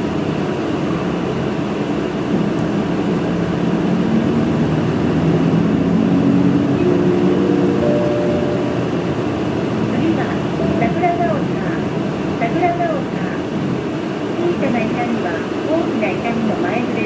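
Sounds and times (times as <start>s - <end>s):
bus engine and cabin noise: 0.0s - 17.0s.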